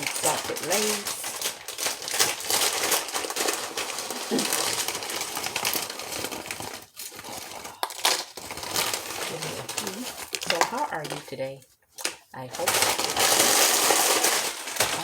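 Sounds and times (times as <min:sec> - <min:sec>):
food packaging crinkling: 0:00.0 - 0:15.0.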